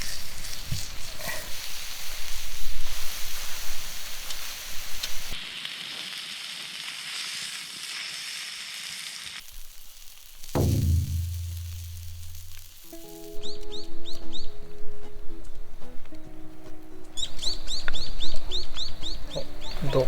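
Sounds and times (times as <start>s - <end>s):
meat sizzling on hot iron: 0.0s - 13.6s
falling tone: 10.6s - 13.0s
music: 10.7s - 20.0s.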